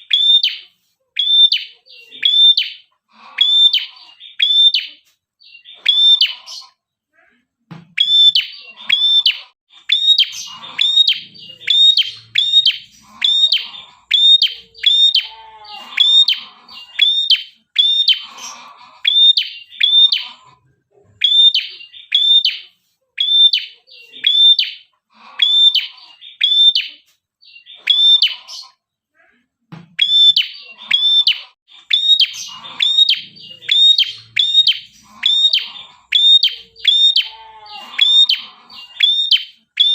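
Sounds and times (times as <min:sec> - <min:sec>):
small songbird calling: 0:08.0 - 0:20.4, 0:30.0 - 0:39.9.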